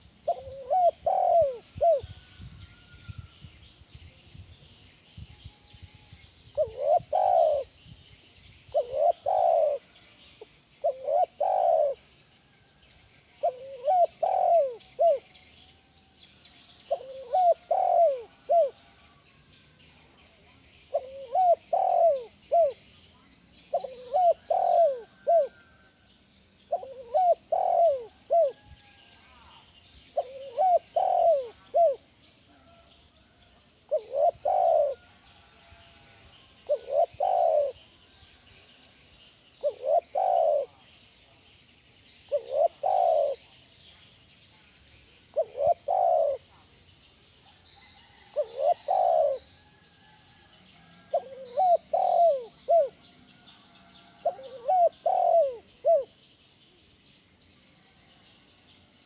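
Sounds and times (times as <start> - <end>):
dove cooing: 0.0 - 2.4, 6.5 - 7.8, 8.7 - 10.1, 10.8 - 12.1, 13.4 - 15.4, 16.8 - 19.0, 20.9 - 22.8, 23.7 - 25.8, 26.7 - 28.7, 29.3 - 32.1, 33.9 - 35.3, 36.6 - 37.9, 39.6 - 40.8, 42.3 - 43.5, 45.3 - 46.6, 48.0 - 49.7, 51.0 - 53.1, 54.2 - 56.2.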